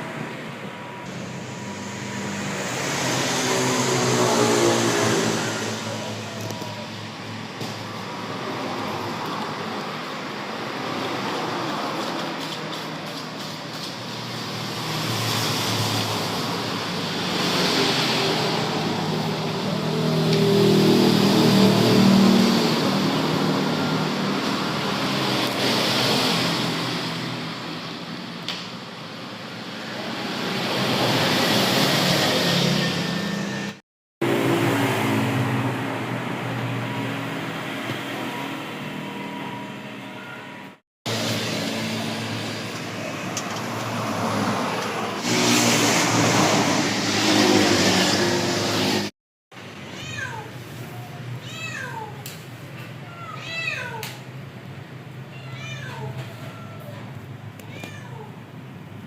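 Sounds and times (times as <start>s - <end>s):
car engine: 0.0s - 12.0s, 13.8s - 40.4s, 41.1s - 49.8s
road noise: 0.0s - 59.0s.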